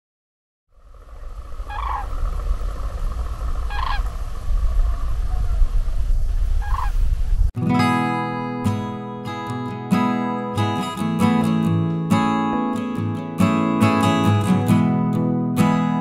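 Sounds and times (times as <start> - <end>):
low wind rumble: 0.7 - 7.6
large birds calling: 0.8 - 6.0, 6.6 - 7.0
guitar music: 7.6 - 16.0.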